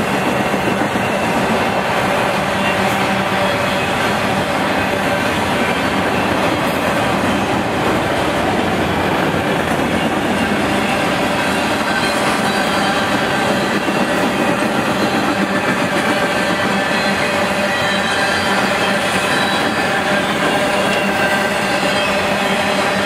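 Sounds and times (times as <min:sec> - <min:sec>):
steel wheels running on rails: 0:00.0 - 0:23.0.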